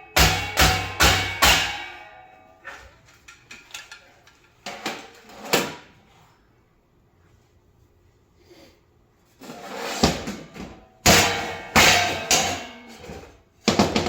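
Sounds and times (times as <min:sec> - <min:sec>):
hammer striking metal housing: 0:00.0 - 0:02.3, 0:11.0 - 0:12.9.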